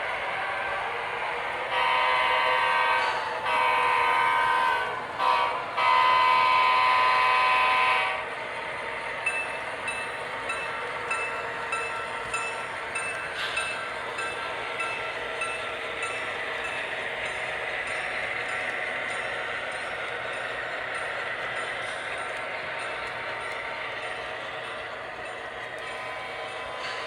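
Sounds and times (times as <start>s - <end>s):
model train horn: 1.6s - 8.3s.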